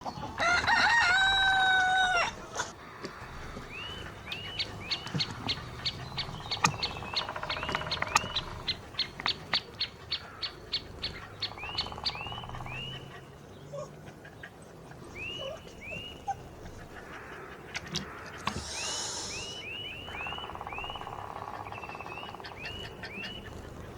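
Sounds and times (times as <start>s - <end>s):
songbirds high notes: 18.4s - 23.5s
short arching bird chirps: 18.5s - 21.1s.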